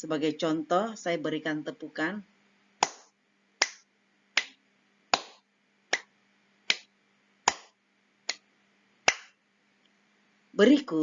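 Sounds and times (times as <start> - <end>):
hand claps: 2.8 - 6.1, 6.7 - 9.4.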